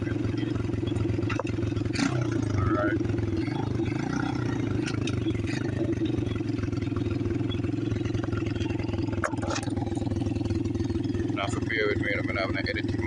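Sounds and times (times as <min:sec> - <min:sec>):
pit bike engine running: 0:00.0 - 0:13.0.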